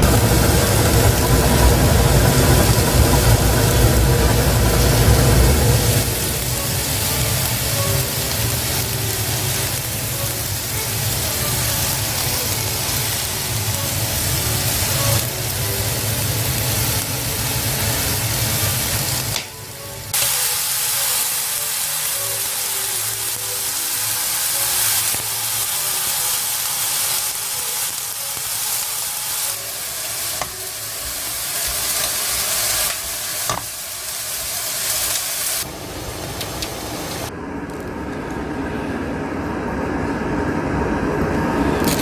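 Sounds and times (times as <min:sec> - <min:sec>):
low rumble: 0:00.0 - 0:08.4
steady hiss: 0:00.0 - 0:37.3.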